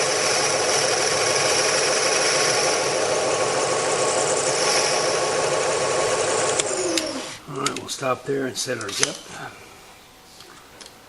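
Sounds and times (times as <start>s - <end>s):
boring machine running: 0.0s - 7.4s
high whine: 0.0s - 7.9s.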